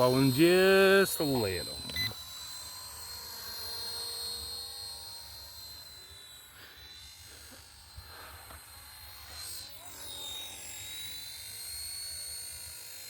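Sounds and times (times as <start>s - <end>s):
rc helicopter motor whine: 0.0s - 13.0s.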